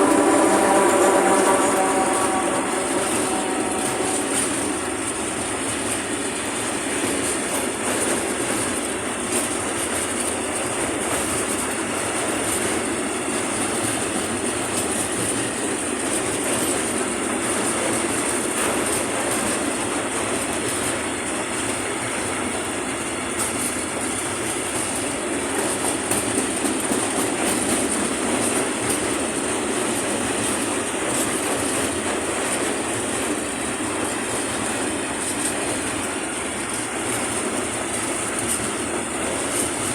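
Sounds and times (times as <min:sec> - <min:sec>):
train rumbling past: 0:00.0 - 0:39.9
wheels clacking over rail joints: 0:00.0 - 0:39.9.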